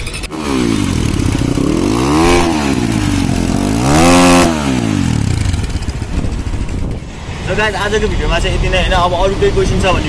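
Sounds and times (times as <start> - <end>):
dirt bike engine revving: 0.0 - 7.1.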